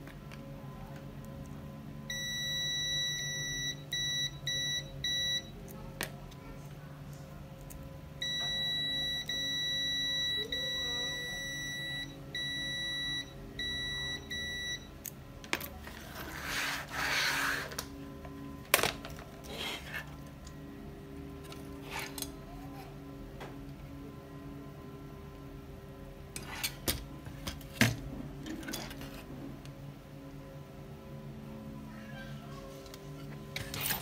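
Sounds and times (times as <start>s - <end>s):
low steady hum: 0.0s - 34.0s
electronic beeper tone: 2.1s - 5.5s, 8.2s - 14.9s.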